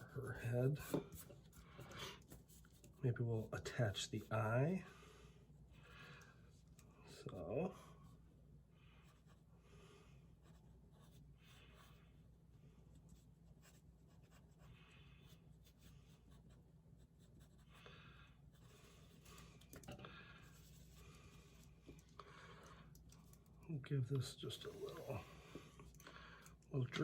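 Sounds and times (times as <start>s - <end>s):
pen scratching on paper: 10.4s - 12.0s, 13.0s - 17.7s.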